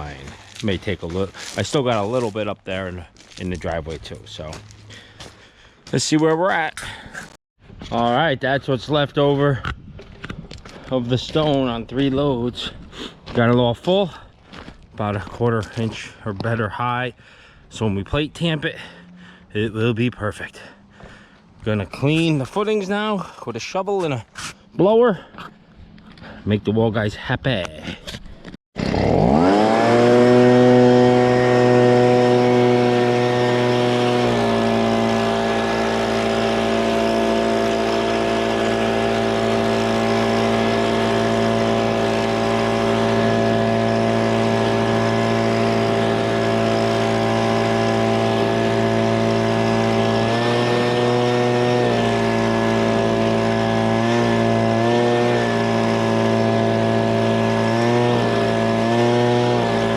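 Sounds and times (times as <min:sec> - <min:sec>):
leaf blower revving: 0:00.0 - 0:02.4, 0:03.1 - 0:05.9, 0:28.8 - 0:59.9.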